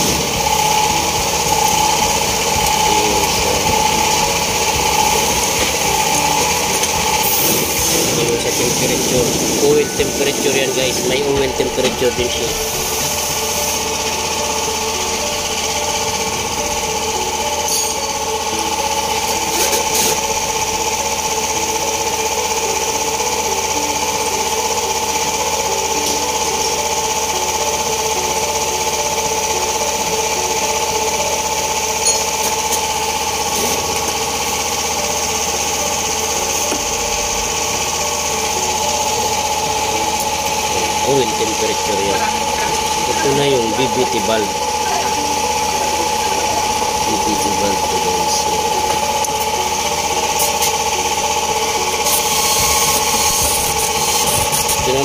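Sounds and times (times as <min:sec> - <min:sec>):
machine running with high whine: 0:00.0 - 0:55.0.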